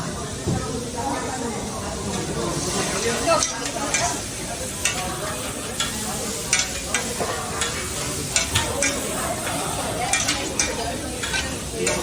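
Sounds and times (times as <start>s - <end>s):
food sizzling: 0.2s - 12.0s
metal utensil clicks and scrapes: 4.8s - 12.0s.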